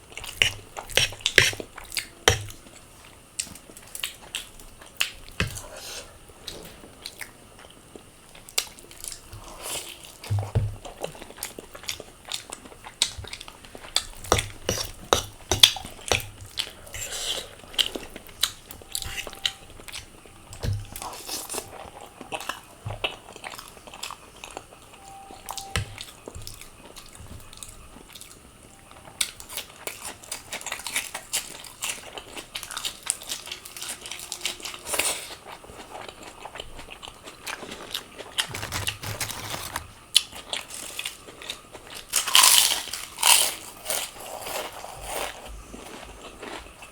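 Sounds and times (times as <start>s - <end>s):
person biting and chewing: 38.4s - 40.2s.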